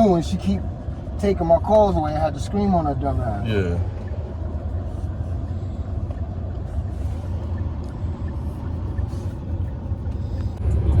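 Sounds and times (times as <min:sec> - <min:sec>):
road rumble: 0:00.0 - 0:11.0
van engine hum: 0:00.0 - 0:11.0.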